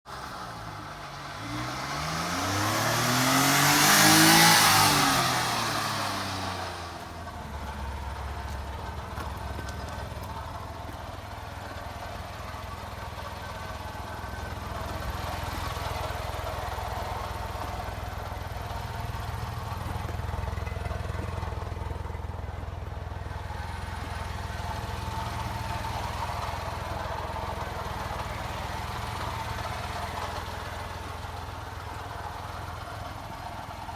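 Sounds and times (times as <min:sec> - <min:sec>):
small engine idling: 0:00.1 - 0:33.9
vehicle passing by: 0:01.3 - 0:09.7.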